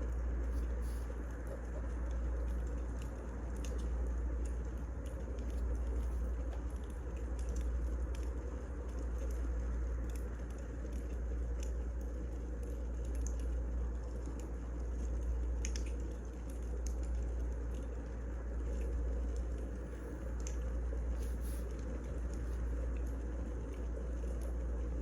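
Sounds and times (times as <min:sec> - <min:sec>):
fire rumble: 0:00.0 - 0:25.0
fire pops and crackles: 0:02.4 - 0:17.9.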